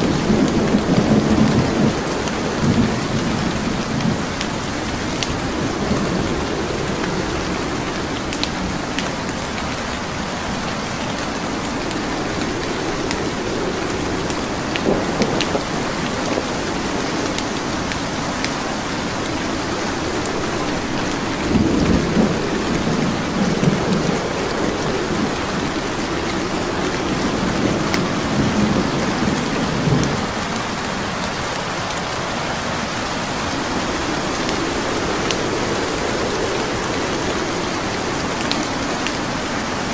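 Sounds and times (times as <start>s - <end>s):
burning logs crackling: 0.0s - 29.6s
heavy rain: 0.0s - 39.9s
low rolling thunder: 0.0s - 39.9s.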